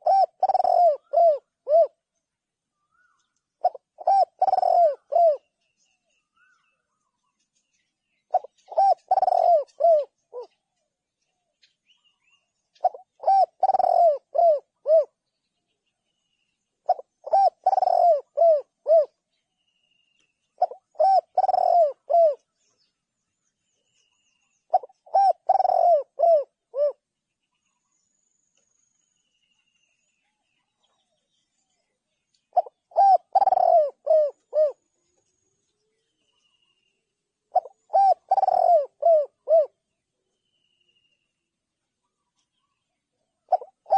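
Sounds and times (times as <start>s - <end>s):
dove cooing: 0.0s - 2.0s, 2.8s - 5.5s, 8.3s - 10.7s, 12.8s - 15.2s, 16.8s - 19.2s, 20.6s - 22.6s, 24.7s - 27.0s, 32.5s - 35.2s, 37.4s - 39.8s, 42.0s - 43.9s.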